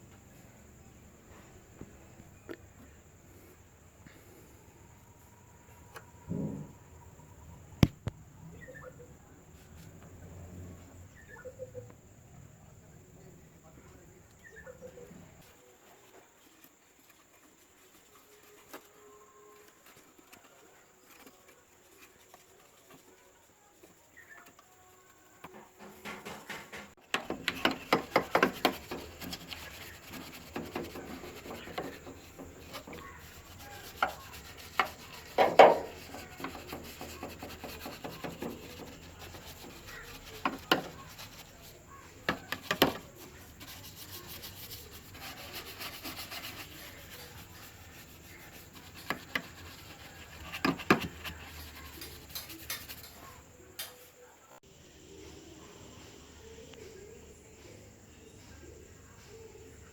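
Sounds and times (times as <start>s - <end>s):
hand rubbing and scraping parts: 13.7s - 54.2s.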